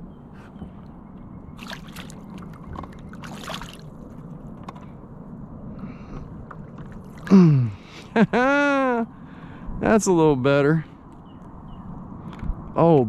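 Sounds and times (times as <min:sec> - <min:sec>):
water sloshing and splashing: 0:01.6 - 0:04.4, 0:06.3 - 0:07.4.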